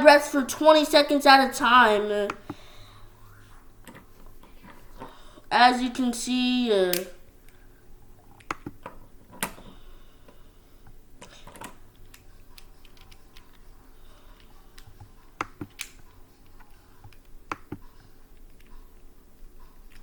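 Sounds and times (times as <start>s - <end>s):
low room hum: 0.0s - 20.0s
sharp clicks and taps: 8.4s - 9.6s, 14.4s - 18.8s.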